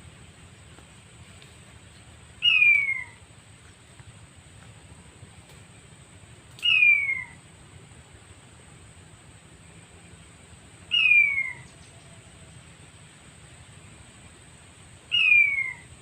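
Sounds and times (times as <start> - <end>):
quail call descending whistle: 2.4 - 3.2, 6.6 - 7.4, 10.9 - 11.8, 15.1 - 16.0.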